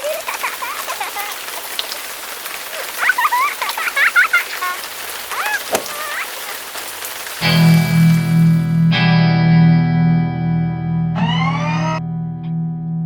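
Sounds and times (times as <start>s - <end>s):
steady rain: 0.0s - 9.4s.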